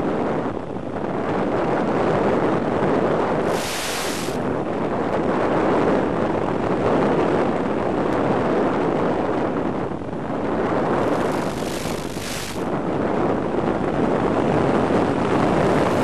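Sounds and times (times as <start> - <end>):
wind rushing over microphone: 0.0 - 16.0
bright hiss: 3.4 - 4.4, 11.0 - 12.7.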